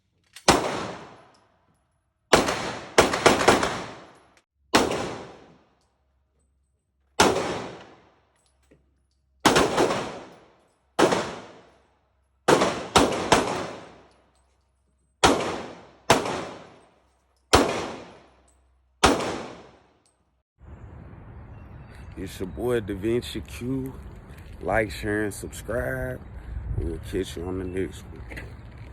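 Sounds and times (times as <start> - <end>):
handgun shots with ringing echo: 0.4 - 1.4, 2.3 - 5.7, 7.2 - 8.1, 9.4 - 11.8, 12.5 - 14.1, 15.2 - 16.9, 17.5 - 19.9.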